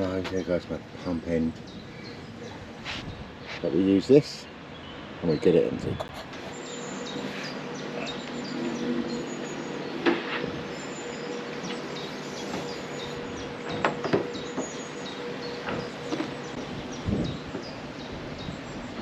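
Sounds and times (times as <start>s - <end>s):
birds chirping: 0.0s - 19.0s
electric water pump humming: 6.3s - 19.0s.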